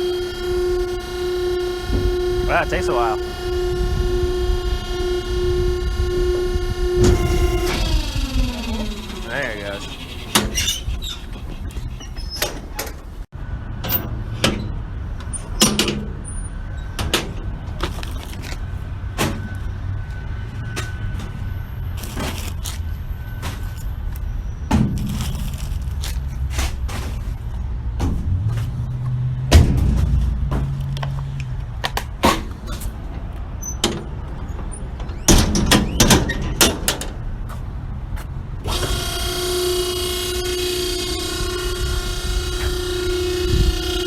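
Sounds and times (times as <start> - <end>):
hydraulic pump humming: 0.0 - 12.8, 38.6 - 44.0
loud bang: 29.5 - 31.0.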